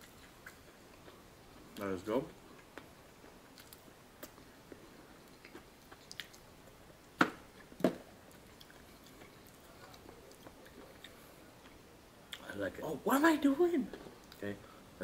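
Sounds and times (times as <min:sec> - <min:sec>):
chewing with wet mouth clicks: 0:03.5 - 0:04.5, 0:05.2 - 0:06.5, 0:07.6 - 0:12.5.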